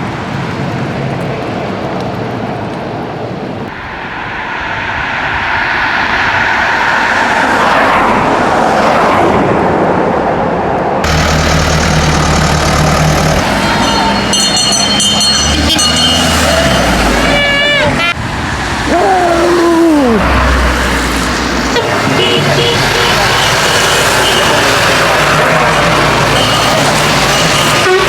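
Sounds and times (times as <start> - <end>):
vehicle passing by: 3.7 - 13.8
low engine hum: 11.0 - 13.6.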